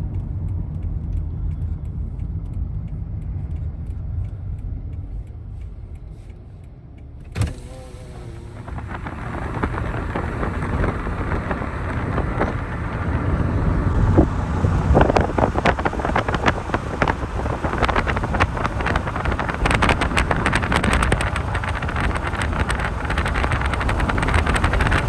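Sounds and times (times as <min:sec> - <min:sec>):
crackling pops: 0:07.3 - 0:25.0
wind buffeting microphone: 0:08.2 - 0:25.0.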